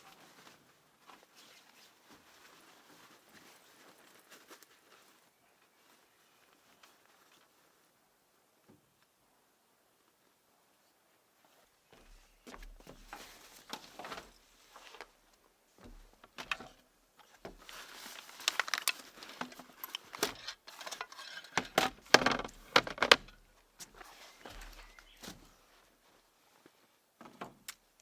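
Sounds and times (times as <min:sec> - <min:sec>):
rustling: 0:00.0 - 0:08.0, 0:12.5 - 0:27.0.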